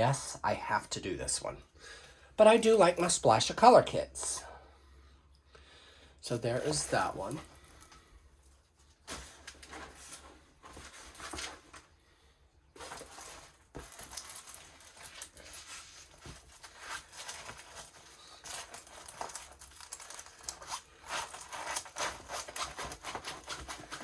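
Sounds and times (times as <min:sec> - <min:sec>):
plastic packaging crinkling: 0:12.8 - 0:24.0.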